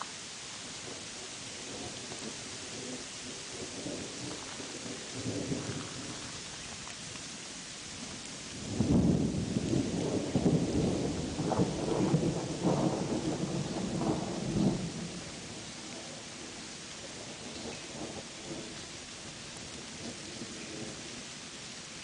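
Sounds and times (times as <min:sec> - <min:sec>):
steady rain: 0:00.0 - 0:22.0
rolling thunder: 0:08.6 - 0:15.6.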